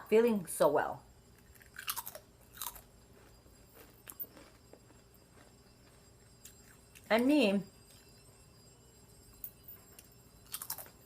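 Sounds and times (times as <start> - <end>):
chewing: 1.3 - 7.1, 10.5 - 11.0
potato chips crunching: 1.4 - 7.1, 10.5 - 10.9.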